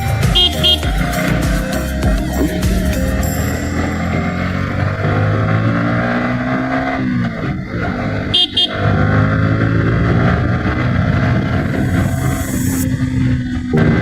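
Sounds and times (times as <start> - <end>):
motorcycle engine revving: 0.0 - 14.0
vehicle horn beeps: 0.1 - 4.9, 8.1 - 9.2.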